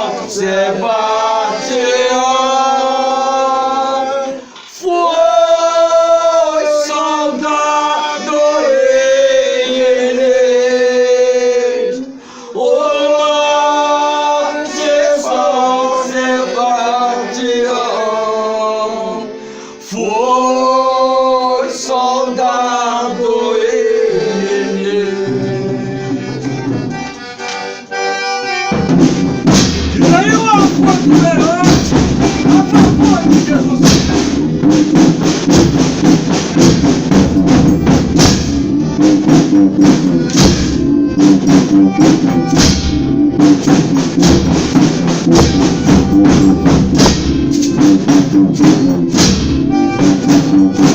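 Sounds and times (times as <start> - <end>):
accordion playing chords: 0.0 - 4.6, 5.2 - 50.9
voices singing: 0.0 - 35.3.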